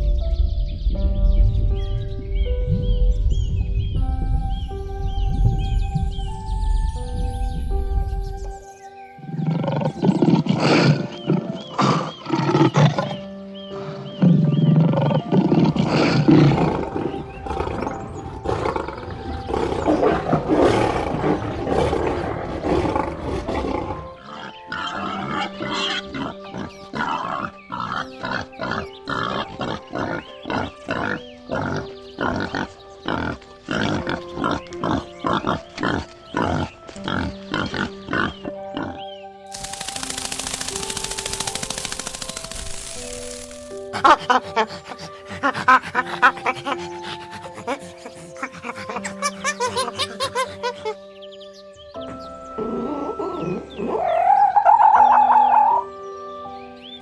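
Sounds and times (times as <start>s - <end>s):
rough animal calls: 13.9s - 51.0s
music with quick beat: 39.5s - 43.7s.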